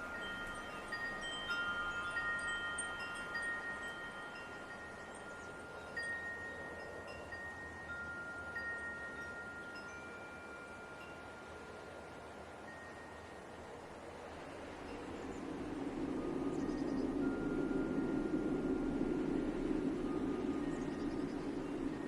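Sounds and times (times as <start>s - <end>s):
soft wind hiss: 0.0s - 22.0s
wind chimes ringing: 0.0s - 22.0s.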